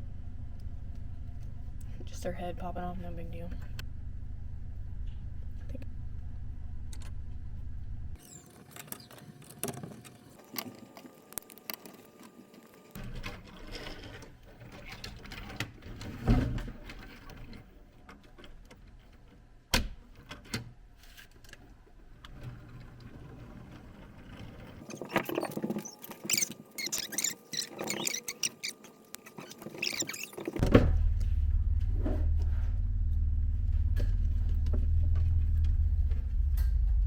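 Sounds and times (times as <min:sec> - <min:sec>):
loud steady low hum: 0:00.0 - 0:08.2, 0:30.6 - 0:37.0
plastic rattling and rubbing: 0:20.3 - 0:30.7.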